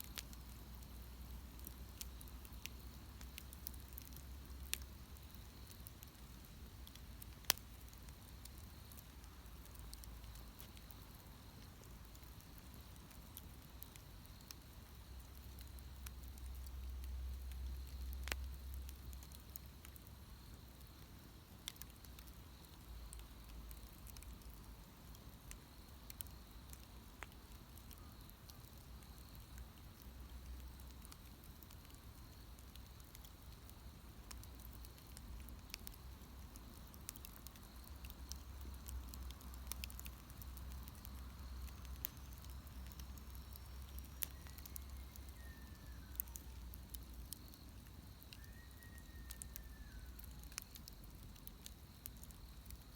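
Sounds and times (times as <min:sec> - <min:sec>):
wood bonfire crackling: 0:00.0 - 0:52.9.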